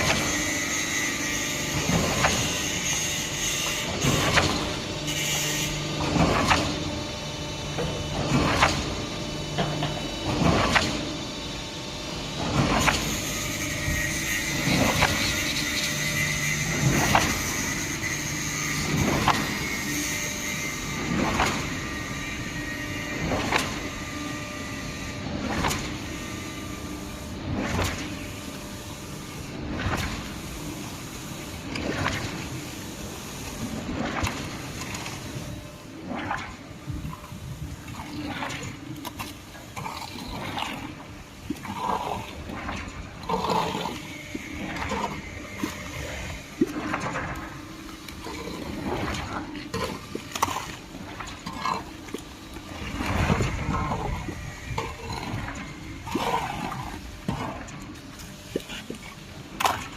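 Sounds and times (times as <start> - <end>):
pump machine hum: 0.0 - 59.9.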